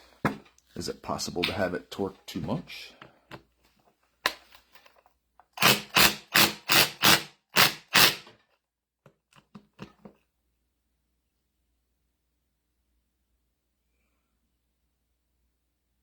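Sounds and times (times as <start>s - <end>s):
sharp tool strokes: 5.6s - 8.3s.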